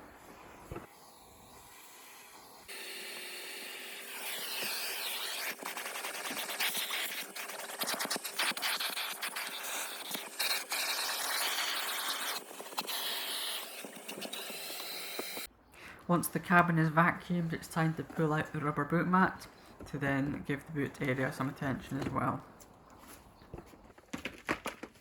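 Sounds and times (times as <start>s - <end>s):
vacuum cleaner running: 0.0s - 15.5s.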